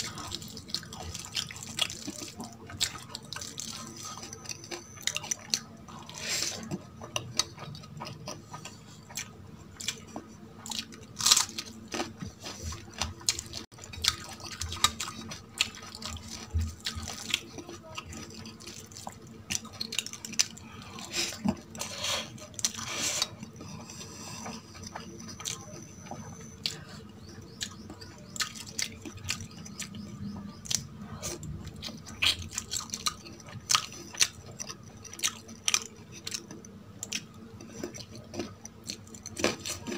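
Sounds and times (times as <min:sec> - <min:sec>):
person chewing with mouth clicks: 0:00.0 - 0:39.9.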